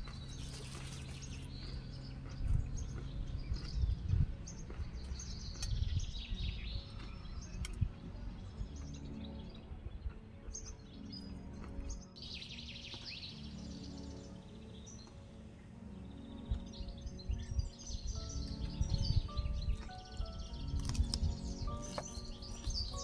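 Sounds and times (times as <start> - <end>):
low ambient rumble: 0.0 - 12.1
birds chirping: 0.0 - 23.0
soft background music: 0.0 - 23.0.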